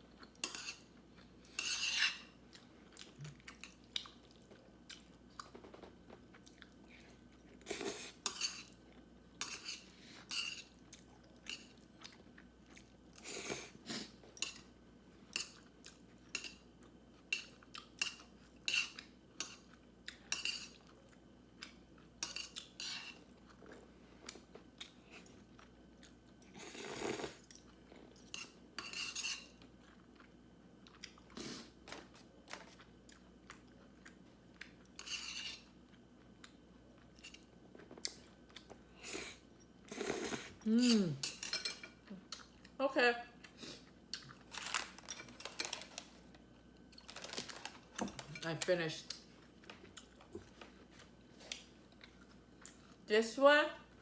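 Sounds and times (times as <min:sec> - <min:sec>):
crunching and chewing fried food: 0:00.0 - 0:14.7, 0:15.4 - 0:41.1, 0:43.4 - 0:48.4, 0:49.1 - 0:53.0
cutlery clinking against dishes: 0:20.3 - 0:20.8, 0:28.3 - 0:29.6, 0:40.8 - 0:42.0.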